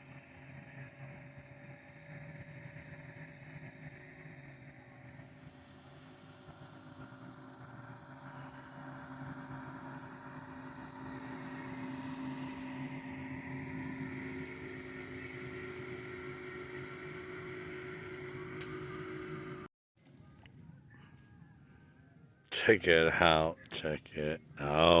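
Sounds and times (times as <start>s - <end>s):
distant engine drone: 0.0s - 19.7s, 22.5s - 25.0s.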